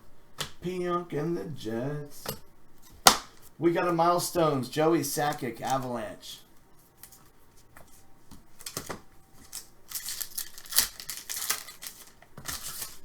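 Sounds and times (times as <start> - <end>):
trading cards rustling and clicking: 7.0 - 13.0.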